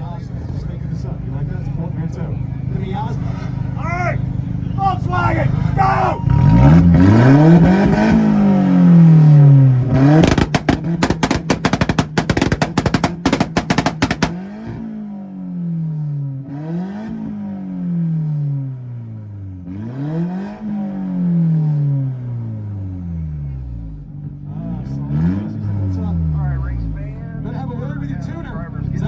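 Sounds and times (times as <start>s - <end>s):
car engine revving: 0.0s - 29.0s
rapid launch limiter pops: 6.2s - 15.0s.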